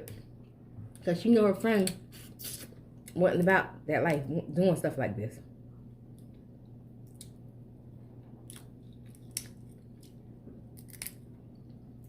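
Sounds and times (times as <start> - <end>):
seafood shells cracking: 8.4 - 11.3.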